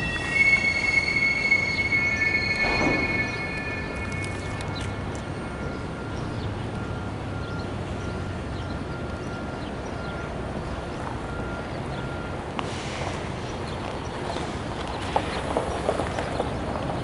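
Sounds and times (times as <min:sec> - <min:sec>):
faint thin high tone: 0:00.0 - 0:05.5
freight train rumble: 0:00.0 - 0:17.0.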